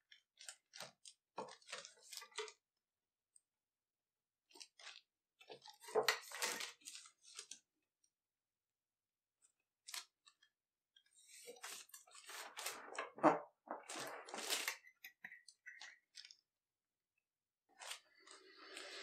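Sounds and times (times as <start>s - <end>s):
rustling crinkling handling noise: 11.2s - 16.4s.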